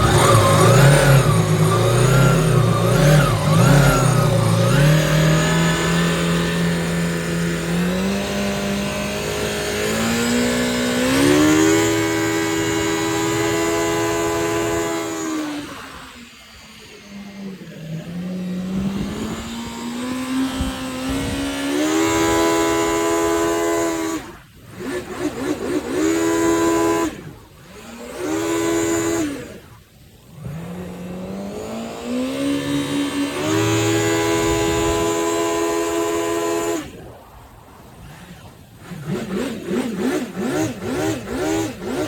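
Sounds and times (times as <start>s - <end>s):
jet ski engine revving: 0.0s - 42.0s.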